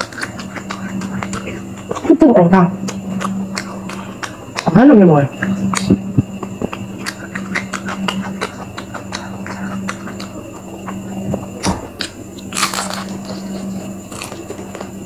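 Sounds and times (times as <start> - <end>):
wet mouth clicks: 0.0 - 2.1, 5.4 - 12.2
chewing crispy food: 0.0 - 15.0
steady low hum: 0.0 - 15.0.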